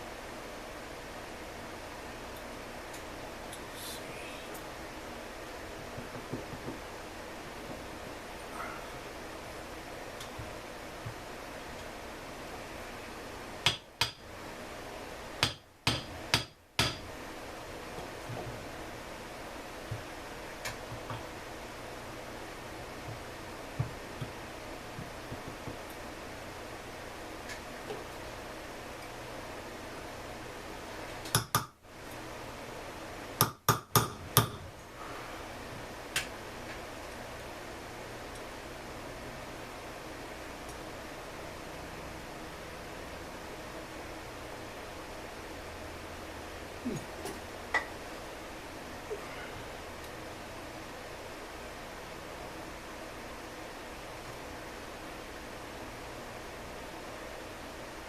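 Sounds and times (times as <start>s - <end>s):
steady background hiss: 0.0s - 58.0s
steady hiss: 2.4s - 13.8s
hard objects knocking: 5.8s - 6.8s
hammer tapping on metal: 13.6s - 14.2s, 15.4s - 17.0s, 31.3s - 31.8s, 33.4s - 34.6s.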